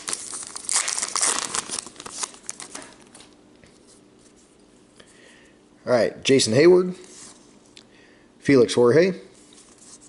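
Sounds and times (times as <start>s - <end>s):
wrapper crinkling and tearing: 0.0s - 3.4s.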